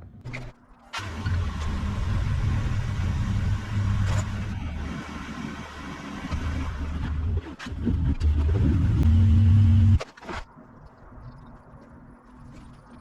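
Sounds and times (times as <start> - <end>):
car engine running: 1.0 - 10.0.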